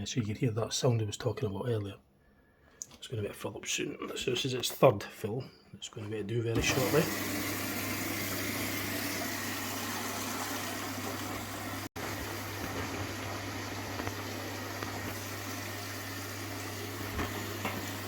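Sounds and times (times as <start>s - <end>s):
water rushing into drum: 6.6s - 18.0s.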